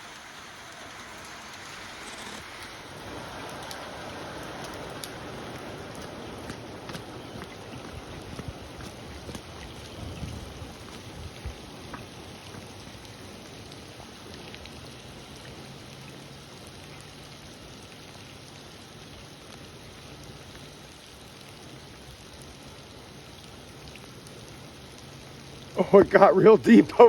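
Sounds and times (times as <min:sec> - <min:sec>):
steady rain falling: 0:00.0 - 0:27.0
single raindrop ticks: 0:03.4 - 0:03.8, 0:04.4 - 0:07.1.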